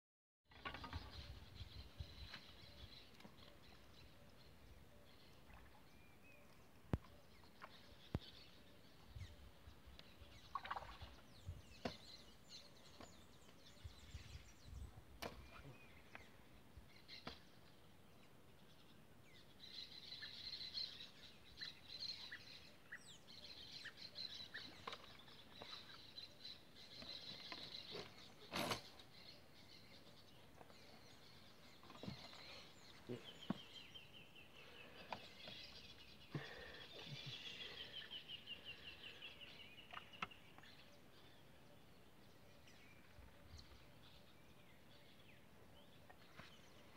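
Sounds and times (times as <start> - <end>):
faint birdsong: 0.5 - 46.9.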